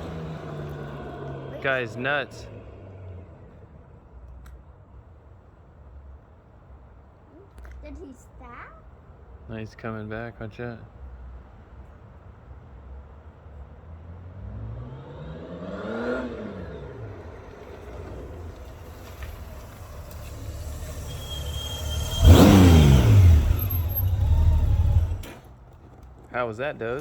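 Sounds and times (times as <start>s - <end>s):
motorcycle engine passing by: 0.0s - 3.9s, 14.2s - 25.6s.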